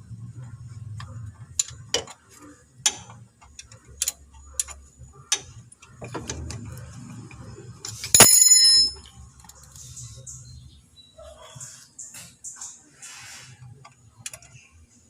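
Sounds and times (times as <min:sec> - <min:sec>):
metal tools clicking and knocking: 0:07.8 - 0:09.6
ringing metallic clang: 0:08.1 - 0:09.0.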